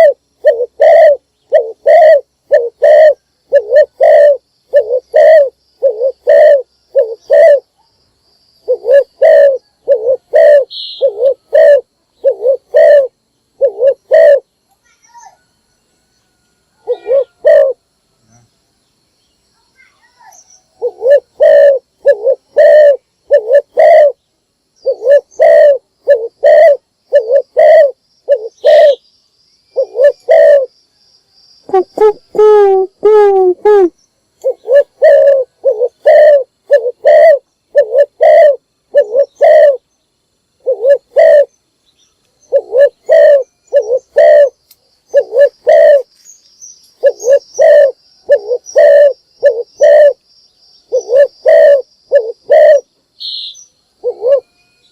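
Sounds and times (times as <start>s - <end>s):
wavering rolling dove call: 0.0s - 7.7s, 8.6s - 14.5s, 16.3s - 17.8s, 20.8s - 24.2s, 24.8s - 29.0s, 29.8s - 30.7s, 31.7s - 39.8s, 40.6s - 41.5s, 42.5s - 46.1s, 47.0s - 50.2s, 50.9s - 54.7s
dove cooing: 0.0s - 7.8s, 8.6s - 14.5s, 16.8s - 17.8s, 20.2s - 24.2s, 24.8s - 29.0s, 29.7s - 30.7s, 31.7s - 39.8s, 40.6s - 41.5s, 42.4s - 46.1s, 47.0s - 50.2s, 50.9s - 53.4s, 54.0s - 54.6s.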